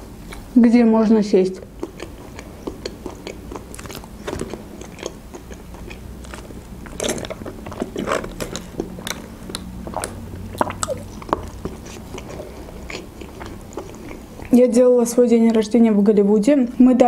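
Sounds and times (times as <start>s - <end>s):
person chewing: 1.6s - 14.6s
wet mouth clicks and smacks: 1.8s - 14.6s.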